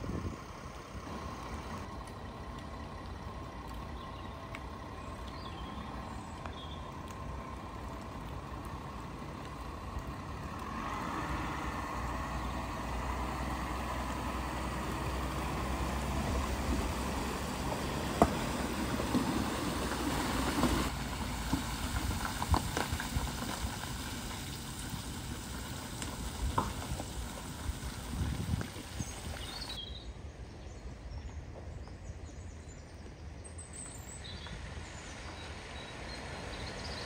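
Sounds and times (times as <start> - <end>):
car engine under load: 0.0 - 29.8
water surging around wheels: 0.0 - 29.8, 34.1 - 37.0
water splashing and dripping: 15.2 - 29.8.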